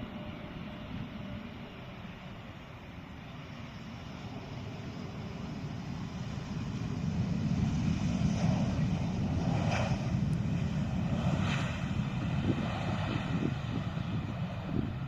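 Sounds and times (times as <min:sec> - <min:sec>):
jet airliner rumble: 0:00.0 - 0:15.0.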